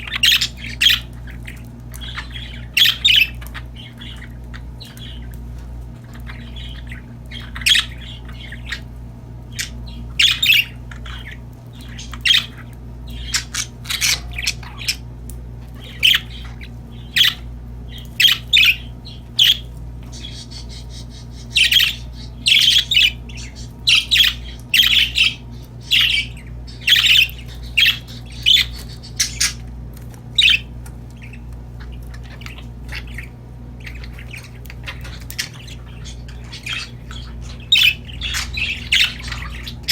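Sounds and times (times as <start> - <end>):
parakeets chirping and squawking: 0.0 - 39.9
steady low hum: 0.0 - 39.9.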